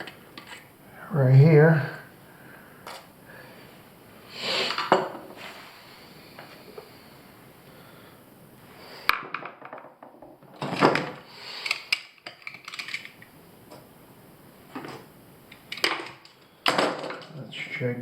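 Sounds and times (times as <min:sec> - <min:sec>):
scrape on hard surface: 0:00.4 - 0:00.7, 0:04.4 - 0:05.8
metal parts clinking: 0:11.6 - 0:13.2.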